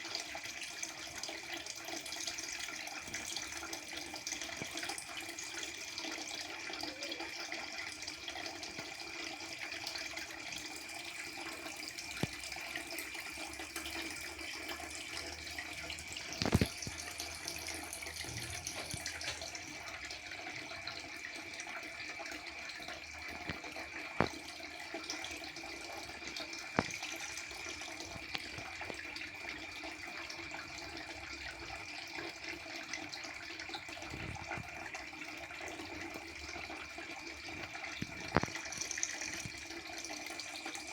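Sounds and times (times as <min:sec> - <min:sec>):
aquarium water trickling: 0:00.0 - 0:40.9.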